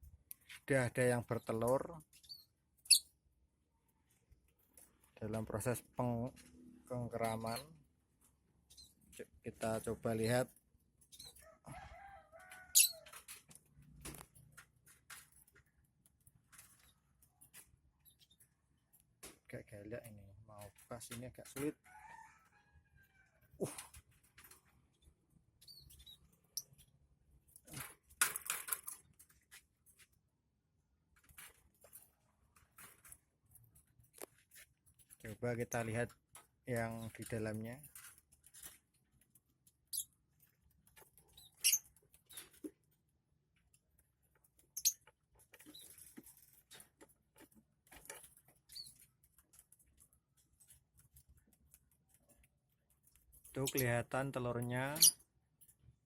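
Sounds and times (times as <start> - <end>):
bird squeaks: 2.2 - 3.1, 12.7 - 13.0
handling a bird cage: 4.1 - 30.4, 31.0 - 56.0.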